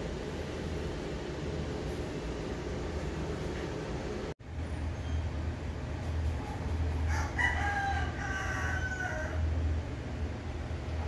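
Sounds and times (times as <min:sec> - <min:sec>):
steady low hum: 0:00.0 - 0:11.0
rooster crowing: 0:07.0 - 0:09.6.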